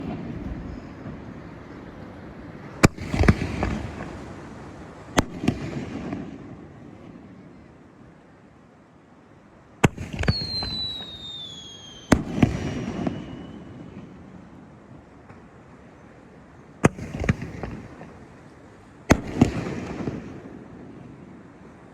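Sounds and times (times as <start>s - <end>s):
fireworks bangs: 2.7s - 7.2s, 9.8s - 14.2s, 16.8s - 18.3s, 19.1s - 20.8s
falling whistle: 10.2s - 14.0s.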